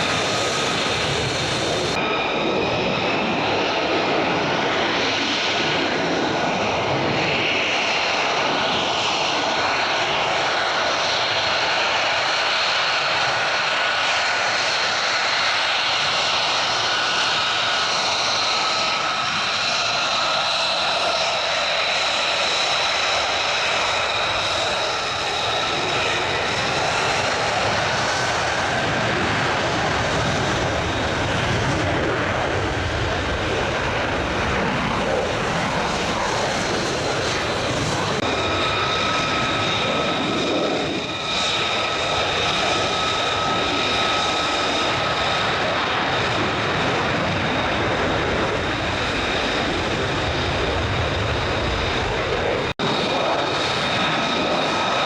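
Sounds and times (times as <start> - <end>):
high turbine whine: 0.0 - 12.2
jet engine roar: 0.0 - 55.0.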